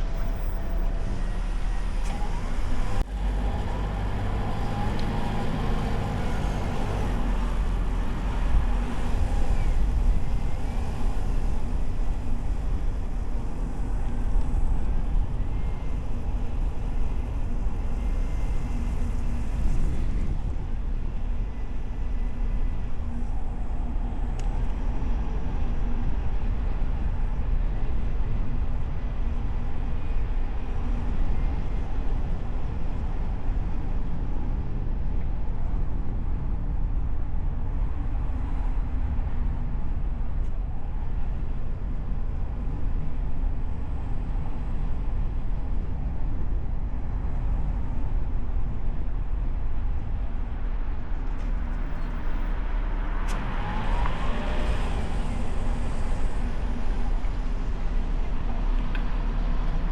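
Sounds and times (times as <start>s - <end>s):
car road and wind noise: 0.0s - 59.9s.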